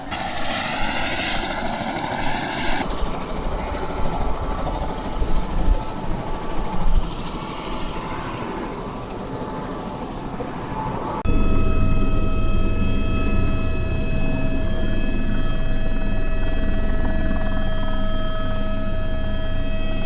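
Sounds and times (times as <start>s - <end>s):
mechanical whine: 0.0s - 20.0s
low hum: 11.3s - 20.0s.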